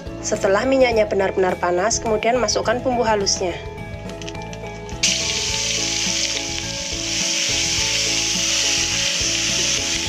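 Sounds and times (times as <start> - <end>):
spice paste sizzling in oil: 5.0 - 10.0.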